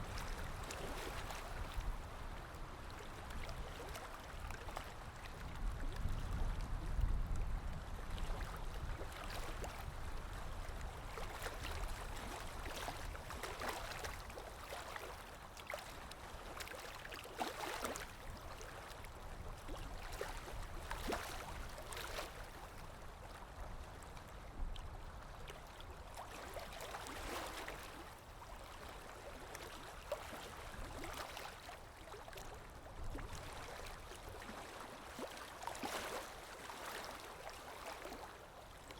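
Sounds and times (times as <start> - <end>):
water splashing and lapping: 0.0 - 6.8, 7.7 - 38.9.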